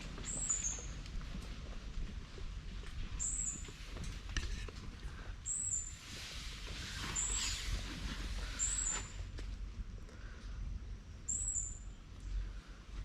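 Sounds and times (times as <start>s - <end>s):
steady low rumble: 0.0s - 6.8s, 7.7s - 13.0s
bird high chirp: 0.3s - 1.0s, 3.2s - 3.7s, 5.5s - 5.9s, 7.1s - 7.6s, 11.3s - 11.9s.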